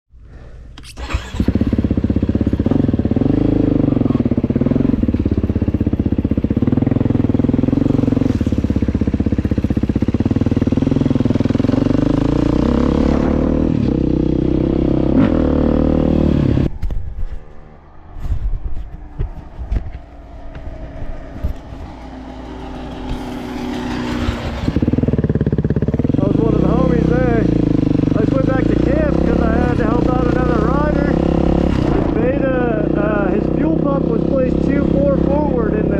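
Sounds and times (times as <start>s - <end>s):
dirt bike engine revving: 1.0s - 16.8s, 20.2s - 35.9s
engine clatter: 19.0s - 35.9s.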